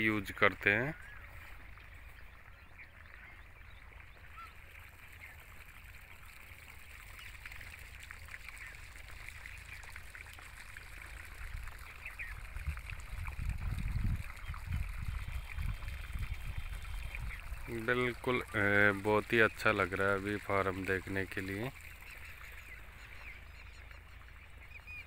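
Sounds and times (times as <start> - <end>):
faint bird chirps: 0.9 - 5.5
wind on microphone: 11.3 - 18.2.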